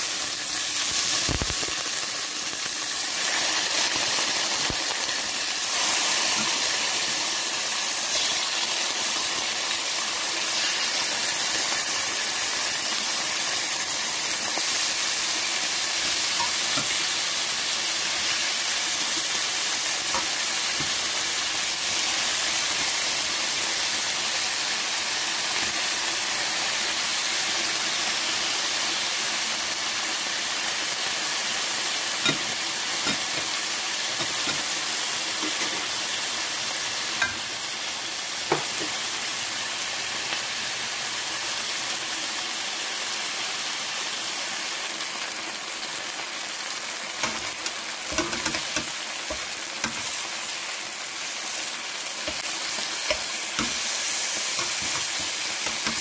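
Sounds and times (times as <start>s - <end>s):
chicken sizzling in hot oil: 0.0s - 56.0s
metal utensil clicks and taps: 47.2s - 50.2s.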